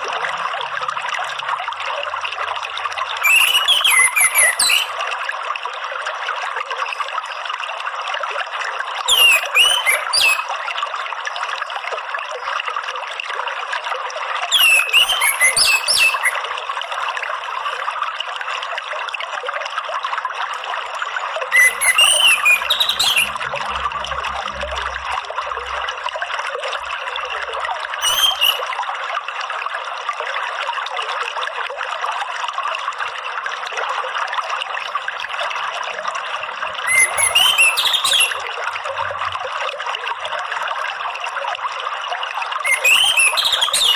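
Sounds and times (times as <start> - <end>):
trickling water: 0.0 - 43.9
bird chirping: 3.2 - 4.9, 9.1 - 10.5, 14.6 - 16.4, 21.6 - 25.0, 28.0 - 28.6, 36.8 - 38.4, 42.7 - 43.9.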